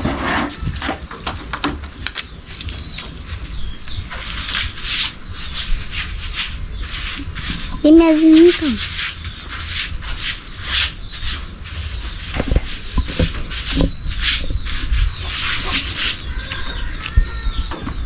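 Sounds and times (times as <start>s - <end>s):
stiff brush rubbing a surface: 3.4s - 17.1s.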